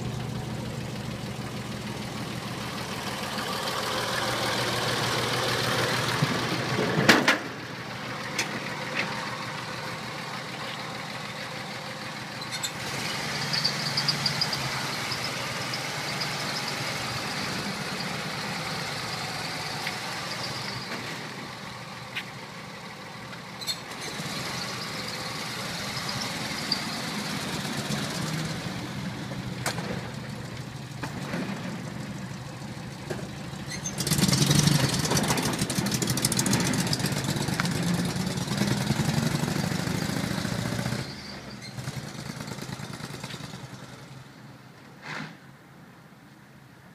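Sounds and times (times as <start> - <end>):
engine idling: 0.0 - 12.8.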